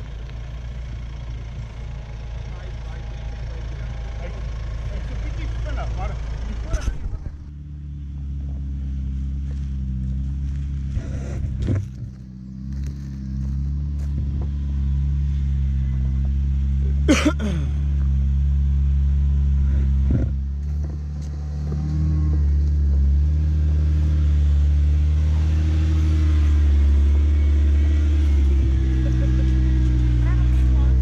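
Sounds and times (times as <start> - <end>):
engine running at low revs: 0.0 - 31.0.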